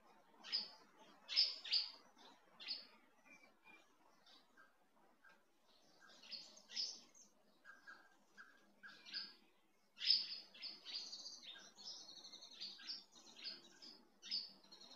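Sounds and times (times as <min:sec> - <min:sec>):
small birds chirping and twittering: 0:00.0 - 0:14.9.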